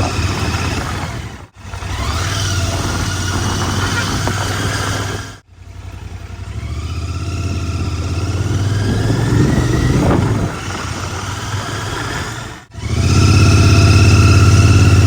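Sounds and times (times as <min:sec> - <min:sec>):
motorcycle engine and exhaust: 0:00.0 - 0:15.0.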